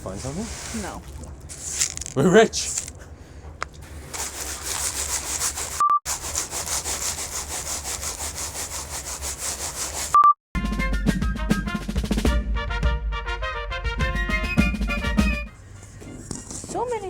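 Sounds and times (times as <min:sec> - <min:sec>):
rasping sawing strokes: 0:04.1 - 0:10.2.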